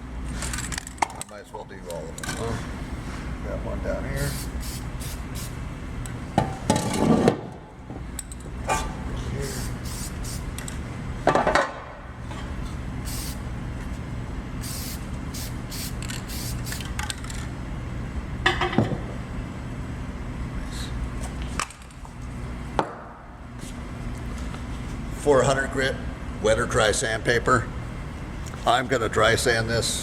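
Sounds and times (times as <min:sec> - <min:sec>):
steady low hum: 0:00.0 - 0:30.0
aerosol can spraying: 0:04.2 - 0:05.6, 0:09.4 - 0:10.5, 0:13.1 - 0:13.4, 0:14.6 - 0:16.9.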